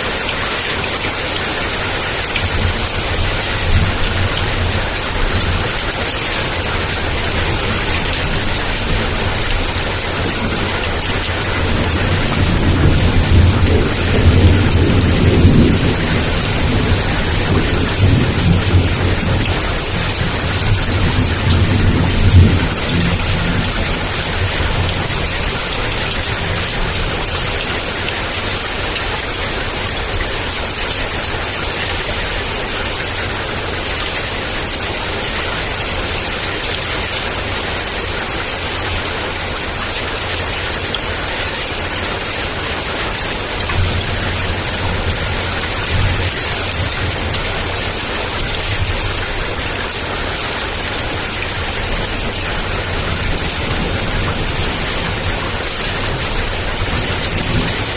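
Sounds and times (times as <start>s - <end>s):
heavy rain pouring: 0.0s - 57.9s
distant thunder rumble: 2.7s - 27.9s.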